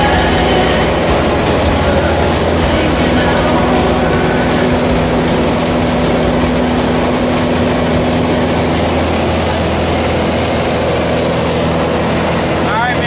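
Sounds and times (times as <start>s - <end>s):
plane engine and propeller droning: 0.0s - 13.0s.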